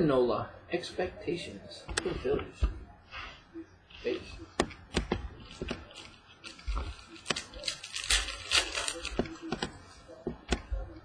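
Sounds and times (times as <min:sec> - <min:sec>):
trading cards clicking and snapping: 0:04.5 - 0:10.7
packaging crinkling: 0:05.4 - 0:09.8.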